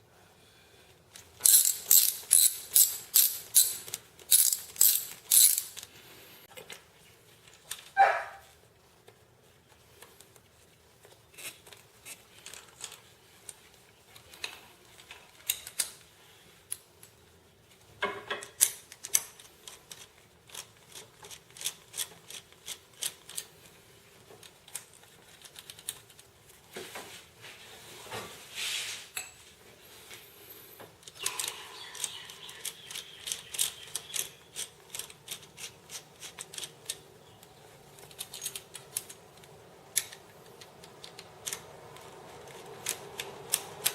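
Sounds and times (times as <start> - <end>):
metallic clicks of hand tools: 1.4 - 5.9, 18.4 - 23.5, 31.0 - 37.0.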